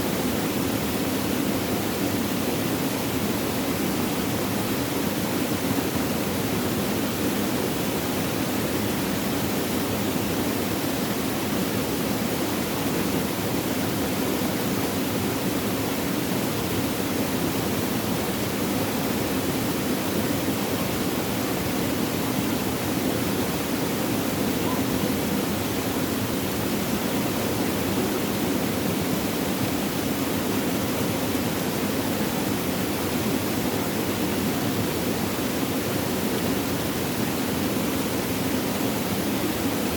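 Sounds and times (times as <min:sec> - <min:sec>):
babbling water rushing: 0:10.9 - 0:39.9.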